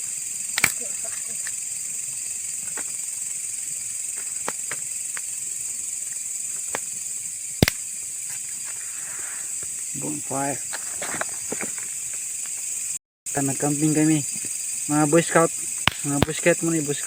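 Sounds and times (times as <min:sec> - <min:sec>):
night insects chirring: 0:00.0 - 0:17.0
bonfire popping and crackling: 0:04.0 - 0:05.6, 0:06.4 - 0:07.9, 0:15.8 - 0:16.6.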